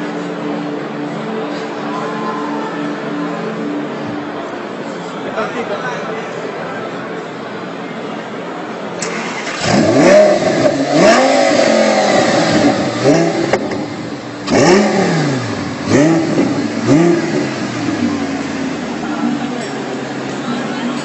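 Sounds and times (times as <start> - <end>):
car engine revving in blips: 9.0 - 19.6.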